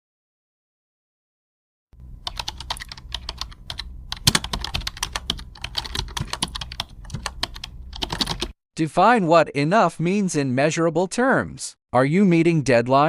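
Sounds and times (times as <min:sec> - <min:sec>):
faint low hum: 0:02.0 - 0:08.5
keyboard key clicks: 0:02.3 - 0:08.5.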